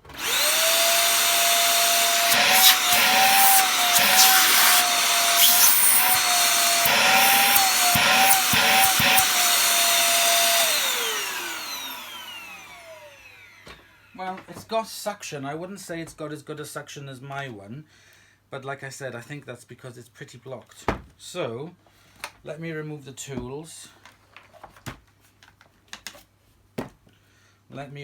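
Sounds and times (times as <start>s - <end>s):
vacuum cleaner motor whine: 0.0s - 14.1s.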